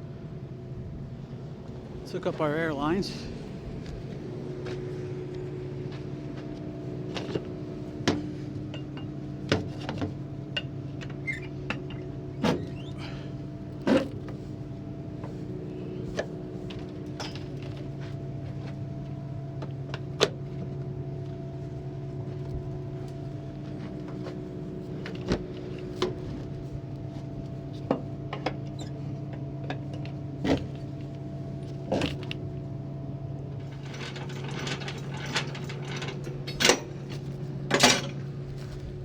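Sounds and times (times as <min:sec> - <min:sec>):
metallic clanks and clicks: 0:33.6 - 0:38.2.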